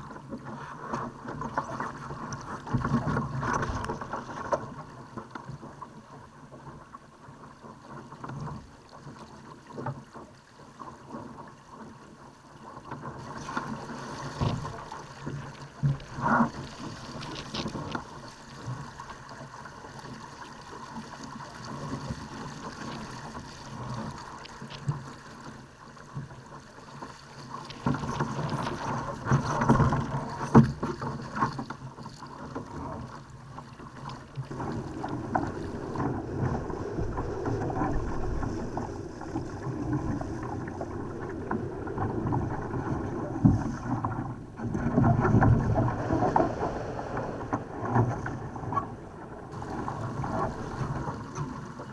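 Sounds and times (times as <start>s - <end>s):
water rushing along a hull: 0.0s - 51.9s
hull slapping into waves: 33.9s - 51.9s
wind buffeting microphone: 34.5s - 51.9s.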